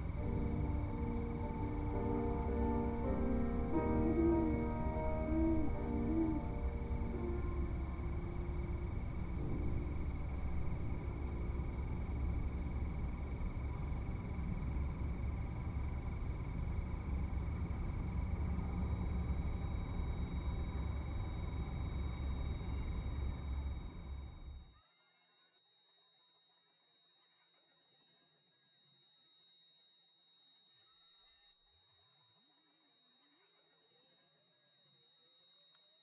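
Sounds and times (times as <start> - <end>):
faint pitched sound: 0.0 - 13.2
thin high-pitched hums: 0.0 - 16.6, 21.6 - 36.0.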